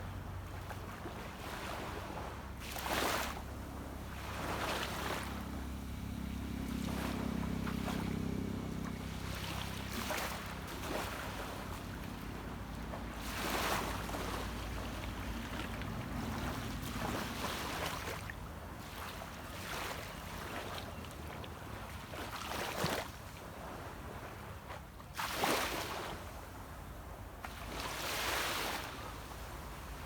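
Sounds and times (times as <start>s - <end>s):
distant boat engine hum: 0.0s - 30.0s
sea waves washing onto beach: 0.6s - 20.0s.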